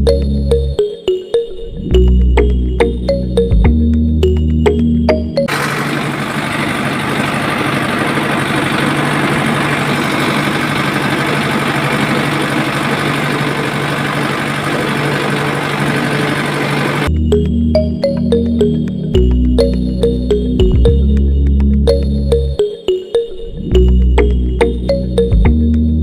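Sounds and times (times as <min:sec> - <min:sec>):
background music: 0:00.0 - 0:05.5, 0:17.1 - 0:26.0
small motor humming: 0:05.5 - 0:17.1.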